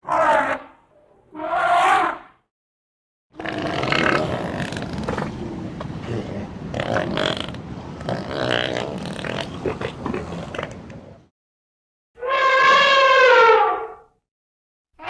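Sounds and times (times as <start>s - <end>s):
elephants rumbling and gurgling: 3.4s - 11.2s.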